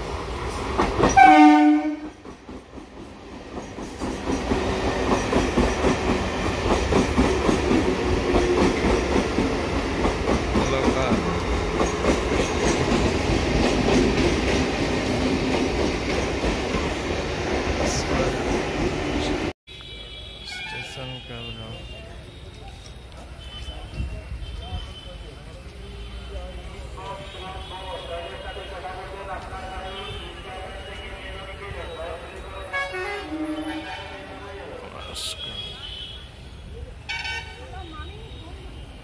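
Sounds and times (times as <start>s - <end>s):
train rumbling along track: 0.0s - 19.6s
train horn blast: 1.2s - 2.2s, 32.6s - 34.6s.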